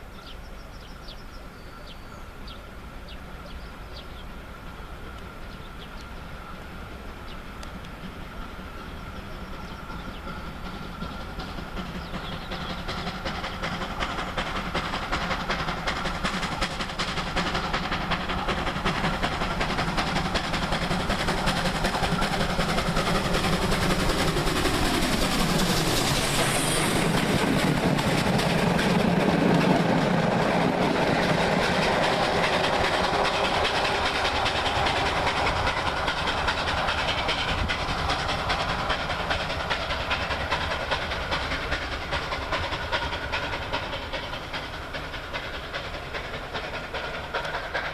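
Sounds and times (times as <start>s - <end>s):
steam locomotive passing: 0.0s - 47.9s
carriages clattering over rail joints: 9.6s - 47.9s.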